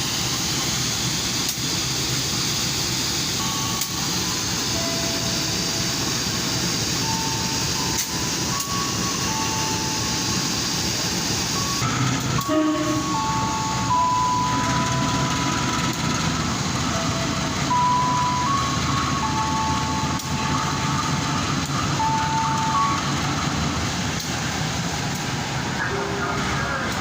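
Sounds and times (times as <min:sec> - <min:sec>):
trains rumbling: 0:00.0 - 0:27.0
public-address jingle: 0:03.4 - 0:10.5, 0:11.5 - 0:23.8, 0:25.6 - 0:27.0.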